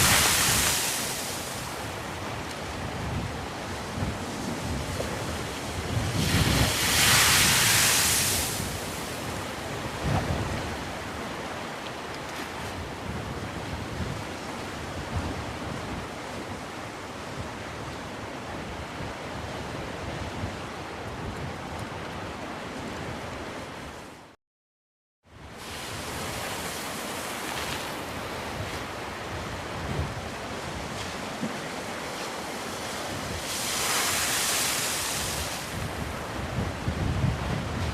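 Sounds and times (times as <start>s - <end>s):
wave breaking: 0.0s - 1.9s, 5.9s - 9.3s, 32.3s - 35.8s
sea waves washing on shore: 0.0s - 24.1s, 25.4s - 37.9s.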